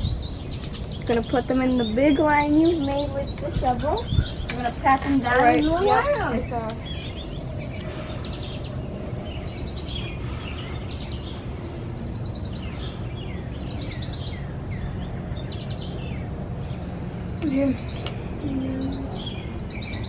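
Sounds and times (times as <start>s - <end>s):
low outdoor background rumble: 0.0s - 20.0s
songbirds singing trills: 0.0s - 20.0s.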